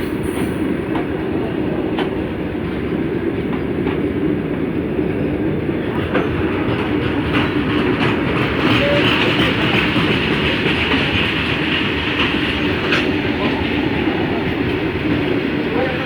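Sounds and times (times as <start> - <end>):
rumble of passing wagons: 0.6 - 16.0
train wheels clacking over rail joints: 5.8 - 16.0.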